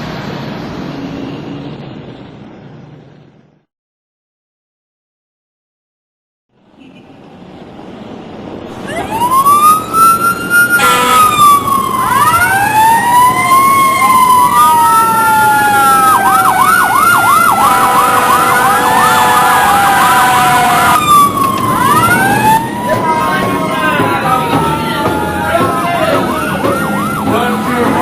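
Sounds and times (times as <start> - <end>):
emergency sirens wailing: 8.7 - 28.0
siren fast yelp: 8.8 - 27.8.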